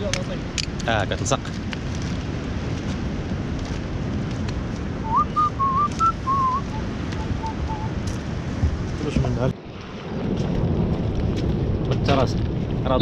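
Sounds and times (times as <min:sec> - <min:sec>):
wind rushing on microphone: 0:00.0 - 0:13.0
person whistling a tune: 0:05.1 - 0:07.9.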